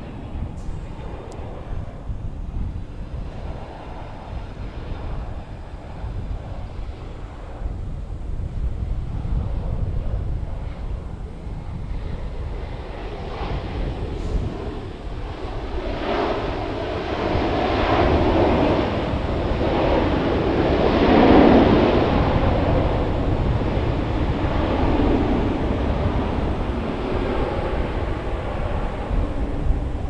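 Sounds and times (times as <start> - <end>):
airliner low rumble: 0.0 - 30.0
airliner rushing noise: 0.0 - 30.0.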